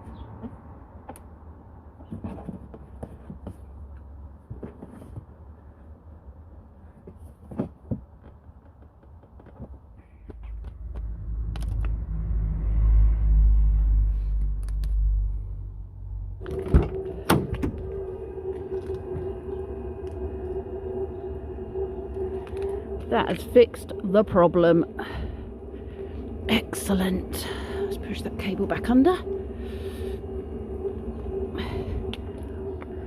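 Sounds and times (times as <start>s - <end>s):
low rumble: 10.1s - 33.0s
steady machine hum: 10.1s - 33.0s.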